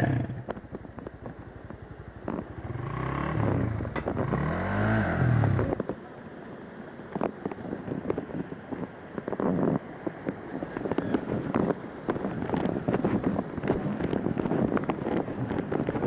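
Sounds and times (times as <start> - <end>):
wind buffeting microphone: 7.7 - 16.0.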